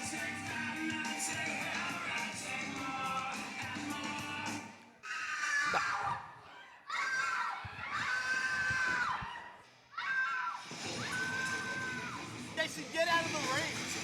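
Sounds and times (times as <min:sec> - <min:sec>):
high-pitched screams: 0:05.0 - 0:12.5.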